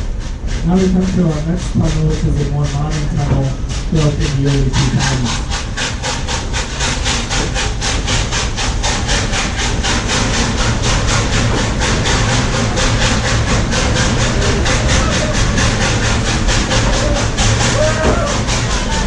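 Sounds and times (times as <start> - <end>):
train rumbling with rapid beat: 0.0 - 19.0.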